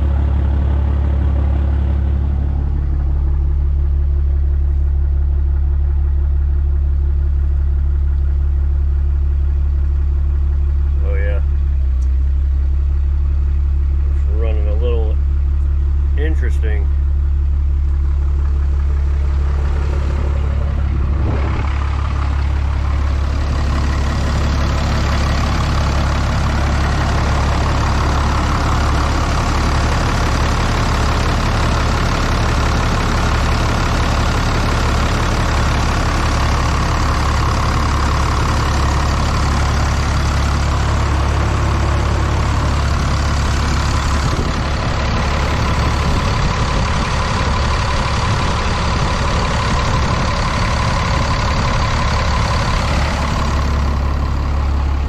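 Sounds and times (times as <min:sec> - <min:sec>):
diesel engine idling: 0:00.0 - 0:55.0
high steady whine: 0:18.6 - 0:23.6.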